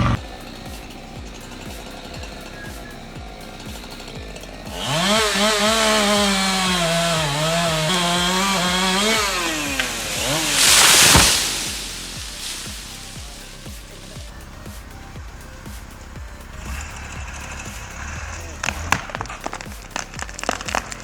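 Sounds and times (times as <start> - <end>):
background music with steady beat: 0.0 - 21.0
chainsaw running at high revs: 0.0 - 21.0
short loud hissing burst: 9.3 - 15.0.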